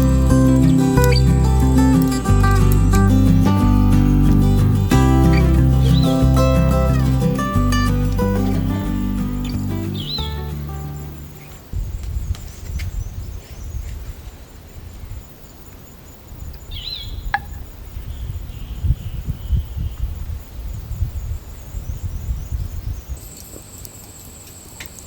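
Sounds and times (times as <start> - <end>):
bird call: 0.0 - 11.6
faint insect chirping: 0.0 - 11.9, 21.2 - 25.0.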